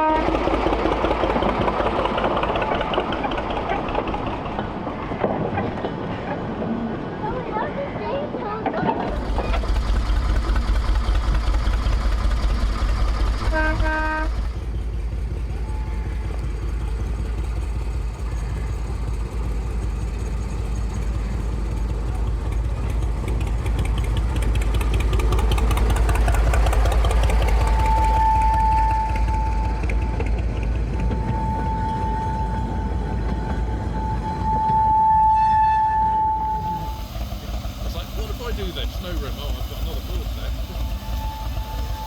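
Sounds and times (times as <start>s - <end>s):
locomotive horn toot: 0.0s - 0.5s, 13.4s - 14.5s, 27.5s - 37.1s, 40.7s - 42.0s
diesel locomotive engine rumbling: 0.0s - 42.0s.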